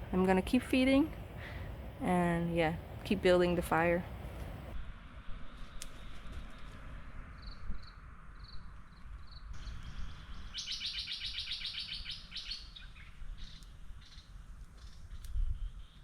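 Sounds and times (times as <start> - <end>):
songbird chirping and trilling: 9.2 - 14.3.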